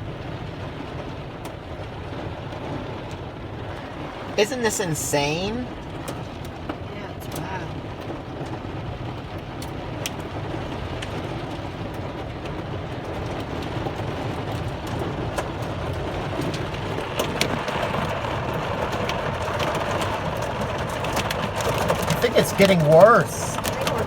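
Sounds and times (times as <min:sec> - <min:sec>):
heavy rain on a vehicle: 0:00.0 - 0:24.0.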